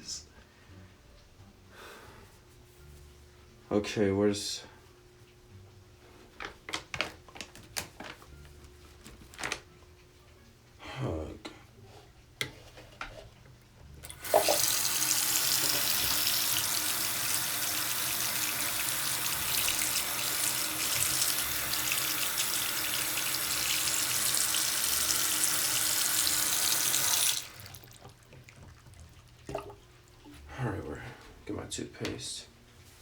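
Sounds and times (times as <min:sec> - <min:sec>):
tap water running into basin: 0:14.0 - 0:30.3.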